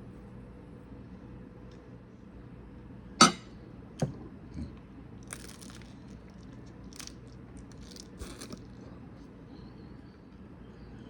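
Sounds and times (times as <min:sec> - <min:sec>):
person chewing crunchy food: 0:04.6 - 0:09.1.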